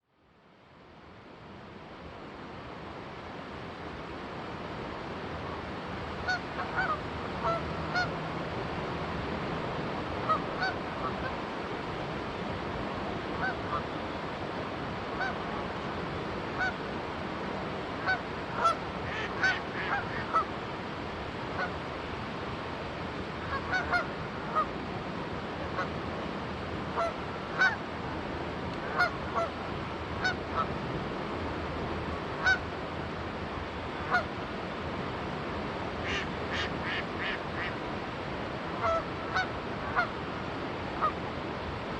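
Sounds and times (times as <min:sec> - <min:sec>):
river rushing: 0:00.3 - 0:41.9
geese honking: 0:06.2 - 0:08.2, 0:10.2 - 0:11.4, 0:16.6 - 0:16.8, 0:18.0 - 0:20.5, 0:23.4 - 0:24.7, 0:27.0 - 0:27.8, 0:28.8 - 0:29.5, 0:30.2 - 0:30.7, 0:32.4 - 0:32.6, 0:34.1 - 0:34.3, 0:36.0 - 0:37.8, 0:38.8 - 0:40.1.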